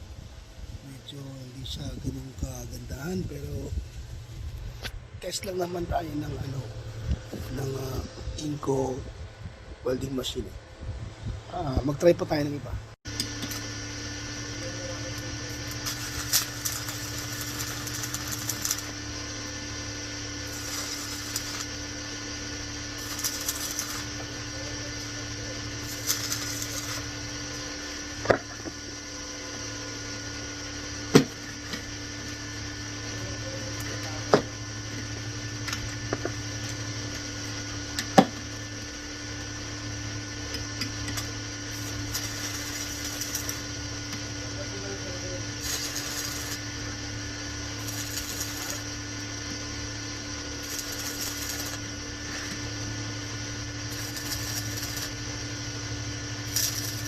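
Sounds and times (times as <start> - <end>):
arc welding crackling hiss: 0.0 - 9.0, 11.5 - 57.0
low electrical hum: 0.0 - 57.0
welding pops: 13.1 - 28.9, 30.9 - 32.8, 33.6 - 39.7, 40.4 - 44.4, 45.5 - 57.0.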